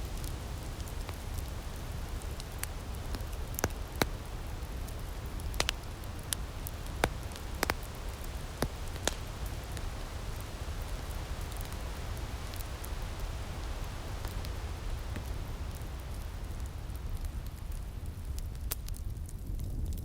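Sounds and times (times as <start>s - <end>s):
wood fire crackling: 0.0s - 20.0s
sharp pops of fire: 0.1s - 20.0s.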